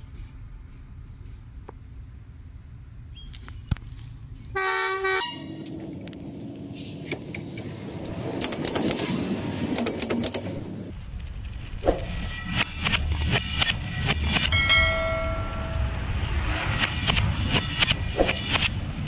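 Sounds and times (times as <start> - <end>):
train horn: 4.6 - 5.7
train wheels rolling on rails: 5.4 - 11.0, 11.7 - 19.0
wheels clicking and clattering: 7.0 - 11.4.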